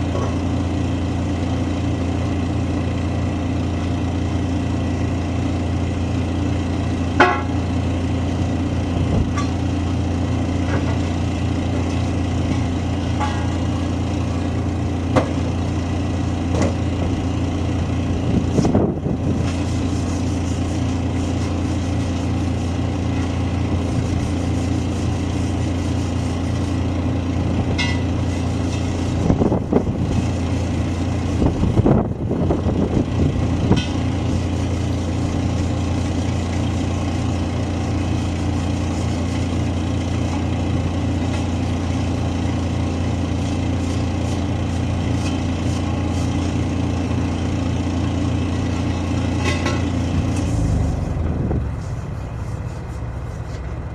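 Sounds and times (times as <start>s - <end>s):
engine idling: 0.0s - 53.9s
metallic knocks and clanks: 12.5s - 13.6s, 27.7s - 28.1s.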